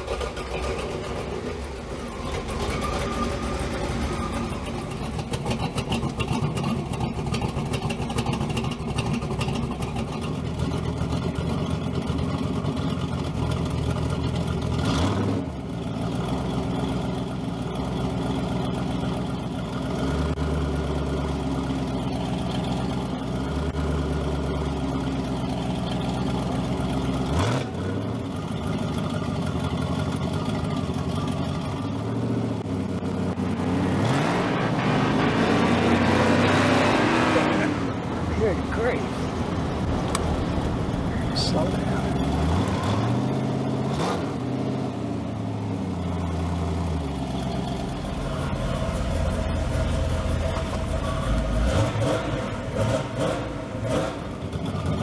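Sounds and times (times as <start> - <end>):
car engine running and revving: 0.0 - 55.0.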